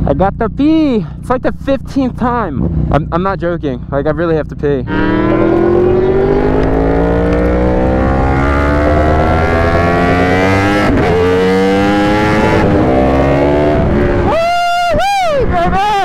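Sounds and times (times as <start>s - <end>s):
motorcycle engine accelerating hard: 4.8s - 14.6s.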